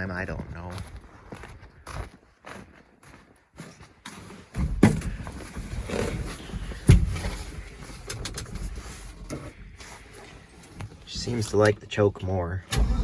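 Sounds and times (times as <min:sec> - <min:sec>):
engine pops: 0:12.7 - 0:13.0
truck engine running roughly: 0:12.8 - 0:13.0.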